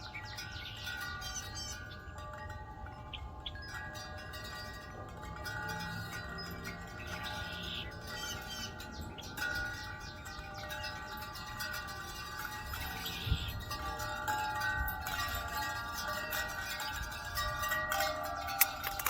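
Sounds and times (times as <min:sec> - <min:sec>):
birds chirping: 0:00.0 - 0:14.2
wind chimes ringing: 0:00.0 - 0:19.0.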